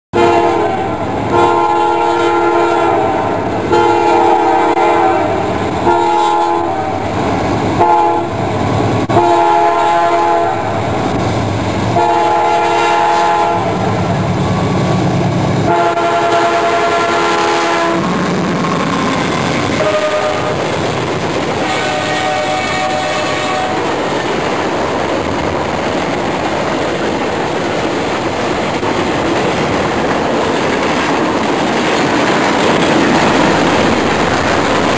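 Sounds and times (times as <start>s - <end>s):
locomotive air horn blasts: 0.1s - 7.0s, 7.8s - 8.4s, 9.1s - 10.8s, 11.9s - 14.0s, 15.6s - 18.2s, 18.8s - 20.6s, 21.6s - 23.9s
locomotive engine rumbling: 0.1s - 34.9s.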